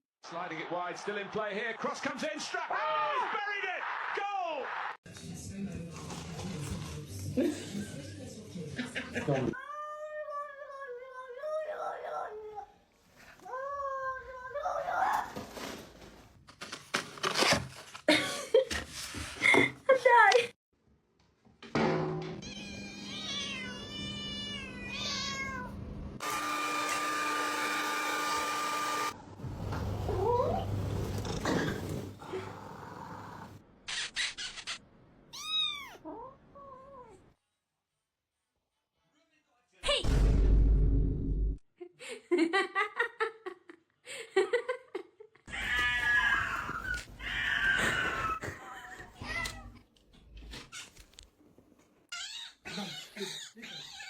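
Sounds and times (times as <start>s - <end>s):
cat meowing: 22.4s - 25.8s, 35.3s - 37.2s.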